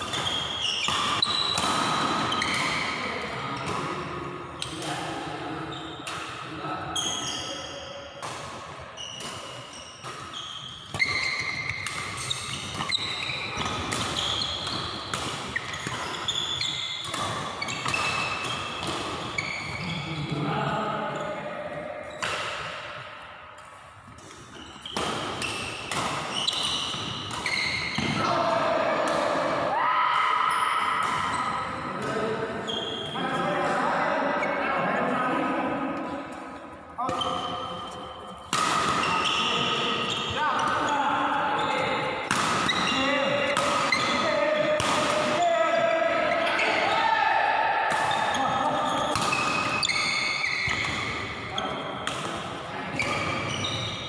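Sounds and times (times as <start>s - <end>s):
rackets striking shuttlecock: 8.2s - 19.8s, 23.6s - 28.2s, 37.0s - 40.9s, 42.0s - 45.4s, 47.8s - 53.4s.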